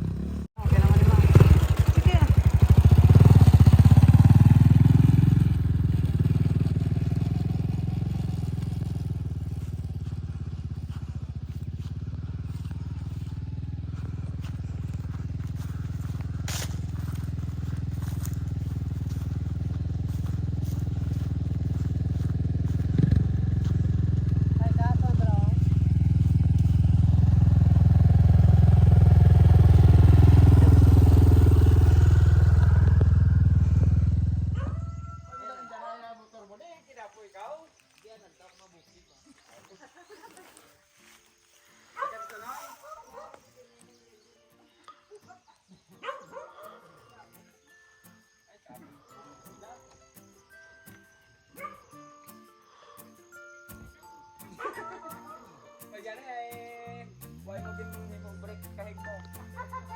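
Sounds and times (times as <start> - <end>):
small engine running: 0.0 - 35.2.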